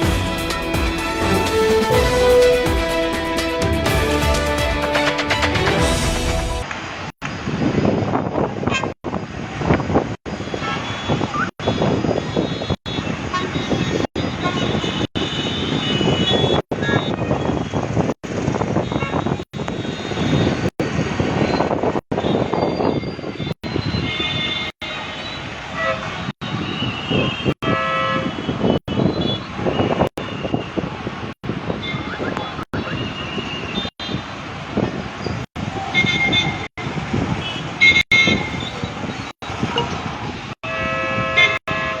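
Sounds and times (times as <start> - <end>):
horns honking: 0.0 - 6.7, 12.4 - 17.6, 23.4 - 30.4, 35.7 - 36.7, 40.6 - 42.0
buses and vehicles running: 0.0 - 42.0.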